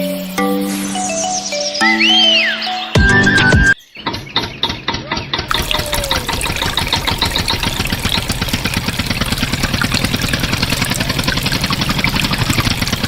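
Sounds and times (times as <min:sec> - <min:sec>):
small engine idling: 0:05.5 - 0:13.0.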